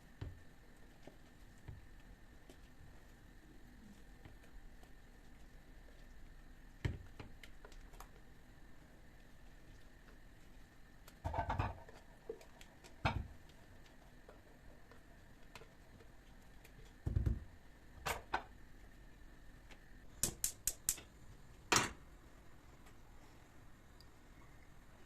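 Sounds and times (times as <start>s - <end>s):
household objects knocking and clicking: 17.0s - 18.5s.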